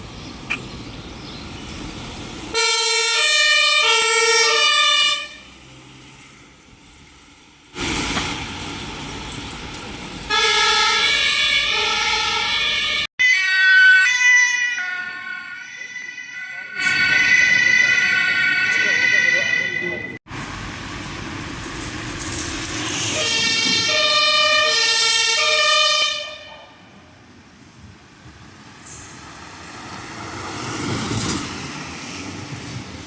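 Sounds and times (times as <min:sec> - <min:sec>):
traffic noise: 0:00.0 - 0:33.0
two-tone emergency siren: 0:02.6 - 0:05.5, 0:10.3 - 0:20.2, 0:23.1 - 0:26.8
different siren: 0:10.3 - 0:20.2, 0:23.1 - 0:26.7.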